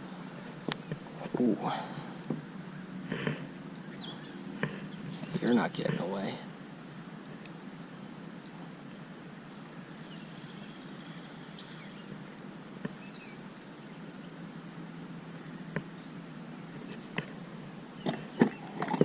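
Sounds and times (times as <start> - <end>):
high insect drone: 0.0 - 19.0
steady background hiss: 0.0 - 19.0
faint bird chirps: 3.7 - 5.6, 10.0 - 14.4.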